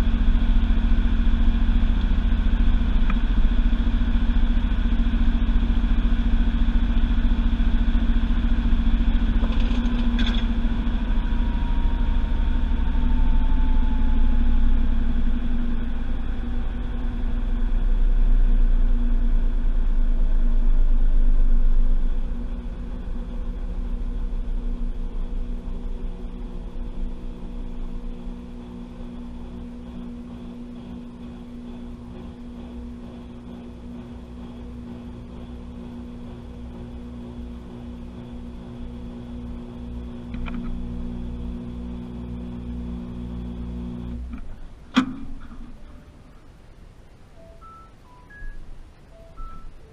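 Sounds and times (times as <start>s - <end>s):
washing machine drum spinning: 23.9s - 46.0s.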